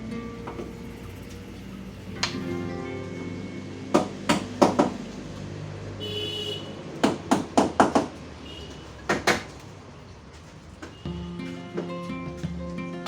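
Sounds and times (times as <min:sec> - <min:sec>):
hammer knocking on car panel: 0:04.0 - 0:05.0, 0:07.0 - 0:08.2.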